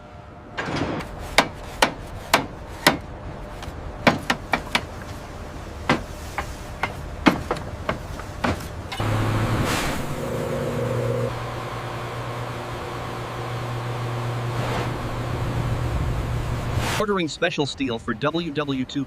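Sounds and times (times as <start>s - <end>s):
steady machine hum: 0.0s - 17.0s
metal knocks and clanks: 0.5s - 3.1s, 5.8s - 9.1s.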